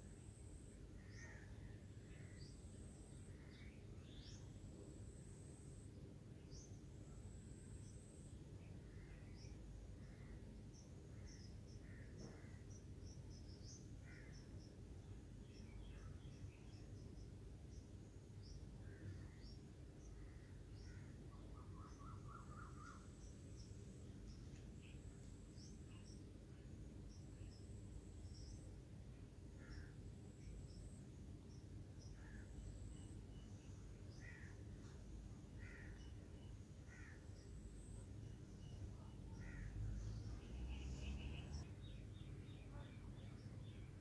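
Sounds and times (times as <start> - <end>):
faint room hum: 0.0 - 44.0
bird chirps: 20.8 - 26.3, 29.6 - 44.0.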